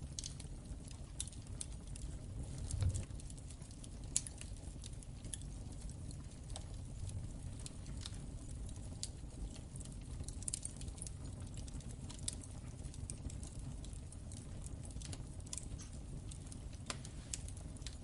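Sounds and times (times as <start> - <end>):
fire crackling and popping: 0.0 - 18.0
low rumble of flames: 0.0 - 18.0.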